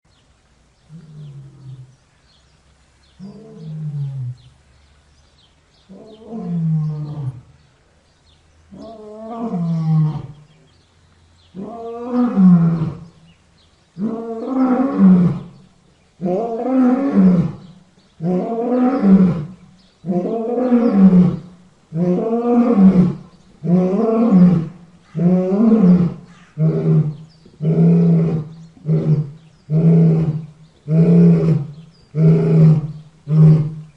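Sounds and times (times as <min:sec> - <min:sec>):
lion roaring: 0:16.2 - 0:33.9.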